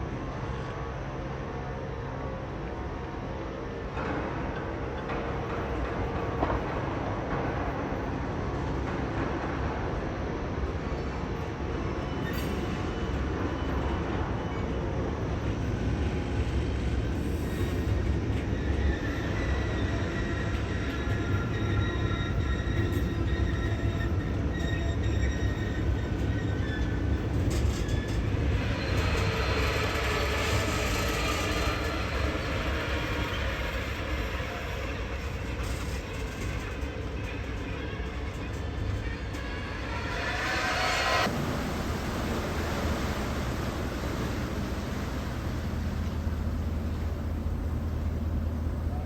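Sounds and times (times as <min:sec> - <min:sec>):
freight train rumbling: 0:00.0 - 0:49.0
train wheel squeals: 0:00.1 - 0:49.0.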